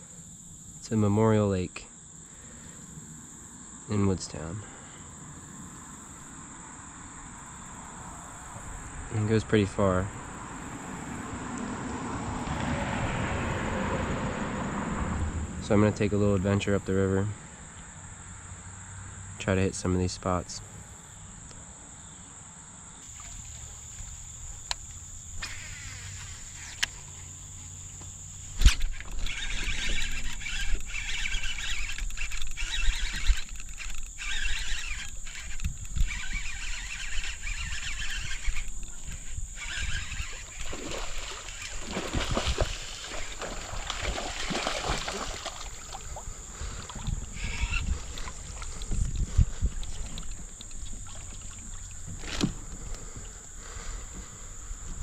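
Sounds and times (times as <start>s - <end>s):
water splashing around kayak: 23.0s - 31.9s, 36.2s - 55.0s
wind rumble on microphone: 28.5s - 55.0s.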